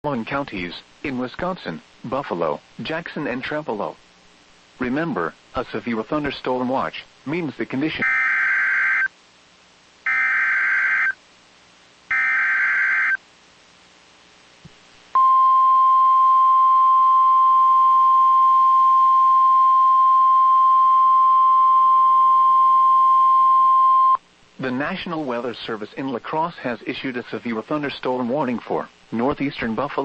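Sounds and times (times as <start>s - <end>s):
steady alarm tone: 8.0s - 9.1s, 10.1s - 11.2s, 12.1s - 13.2s.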